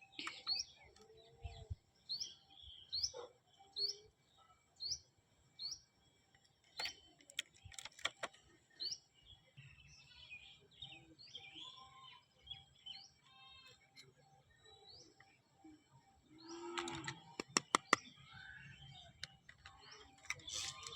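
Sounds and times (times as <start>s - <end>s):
small bird chirping: 0.0s - 20.9s
sharp clicks: 16.7s - 18.1s.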